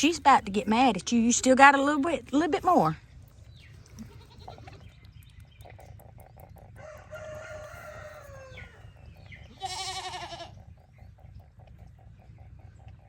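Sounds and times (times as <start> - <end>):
goat bleating: 4.0 - 4.8, 9.5 - 10.6.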